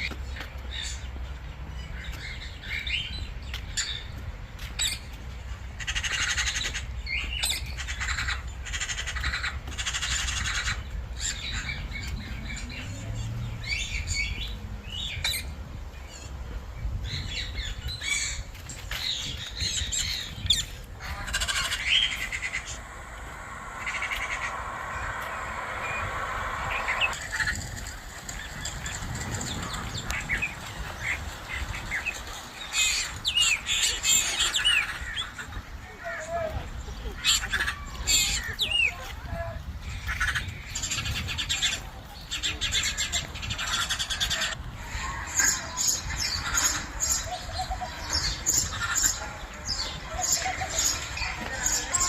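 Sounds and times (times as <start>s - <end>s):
birds chirping and squawking: 17.1s - 35.7s, 39.8s - 52.0s
steady low rumble: 20.4s - 32.0s.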